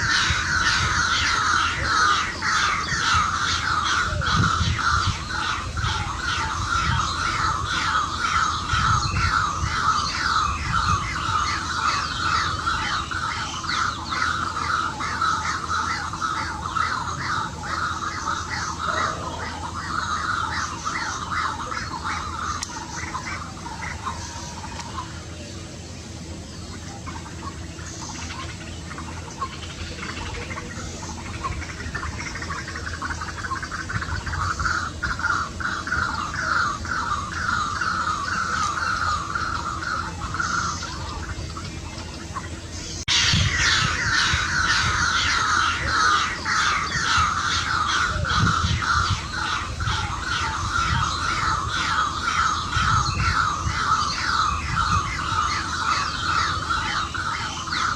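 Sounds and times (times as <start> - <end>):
waterhen calling: 0.0 - 57.9.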